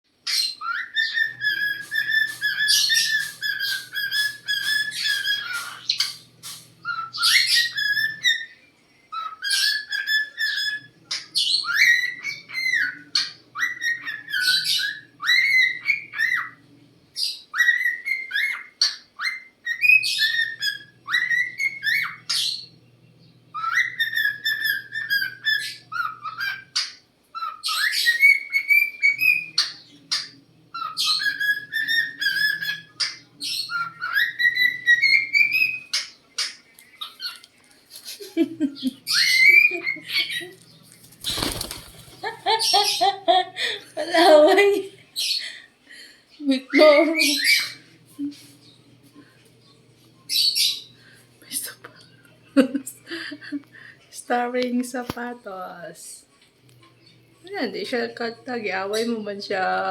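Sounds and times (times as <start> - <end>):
cockatiel whistling: 0.3 - 8.6, 9.2 - 16.6, 30.8 - 36.0
faint low hum: 0.6 - 59.9.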